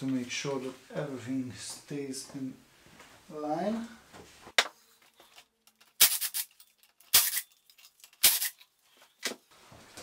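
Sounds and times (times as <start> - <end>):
metallic clicking and rattling of tools: 5.3 - 8.7.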